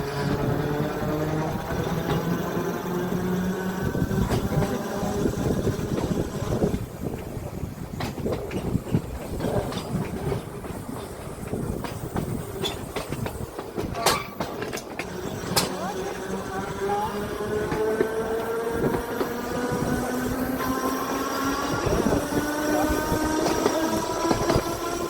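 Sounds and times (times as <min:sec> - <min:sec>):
electric tram motor whine: 0:00.0 - 0:08.0, 0:15.0 - 0:25.0
wheels clicking over rail joints: 0:00.0 - 0:25.0.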